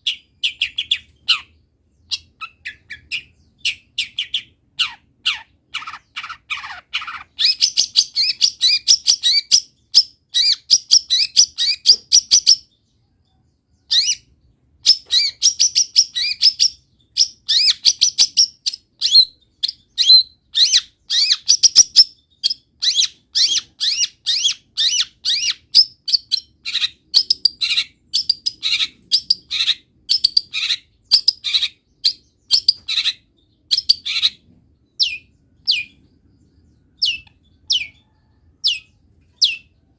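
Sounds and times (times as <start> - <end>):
bird singing chattering notes: 27.2 - 39.8.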